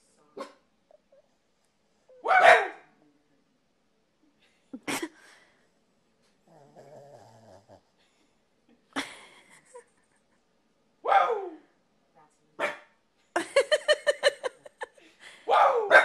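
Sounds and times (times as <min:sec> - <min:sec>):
dog barking: 0:00.4 - 0:00.6, 0:02.2 - 0:02.9, 0:11.0 - 0:11.6, 0:12.6 - 0:13.0, 0:15.5 - 0:16.0
dog growling: 0:06.4 - 0:07.9.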